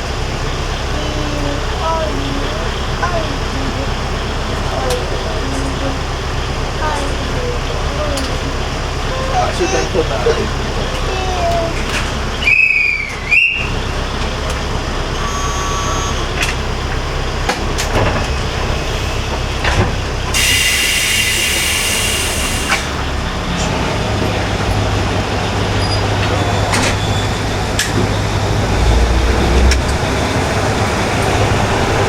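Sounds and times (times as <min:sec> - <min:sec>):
diesel engine drone: 0:00.0 - 0:32.0
rail noise: 0:00.0 - 0:32.0
loud hiss: 0:20.3 - 0:23.0.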